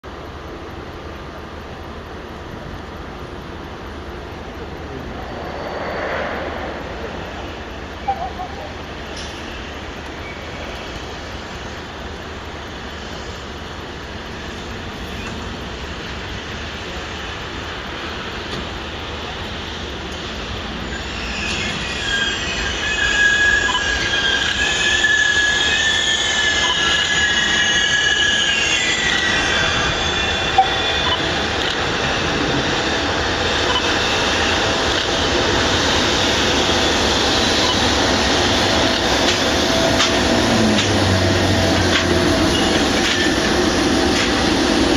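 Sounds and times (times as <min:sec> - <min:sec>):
freight train rolling: 0:00.0 - 0:44.9
wheel squeal: 0:20.8 - 0:34.6, 0:36.1 - 0:44.4.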